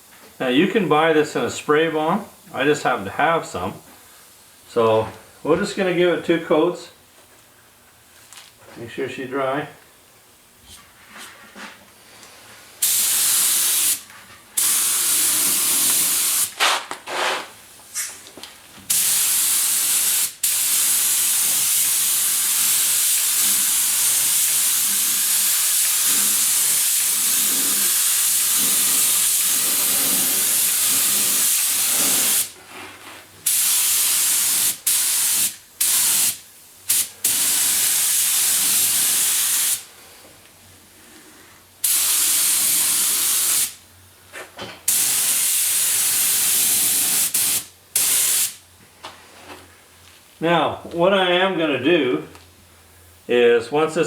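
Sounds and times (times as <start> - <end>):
aerosol spray can hissing: 12.8 - 14.0, 14.6 - 16.6, 18.9 - 32.5, 33.5 - 39.8, 44.9 - 48.6.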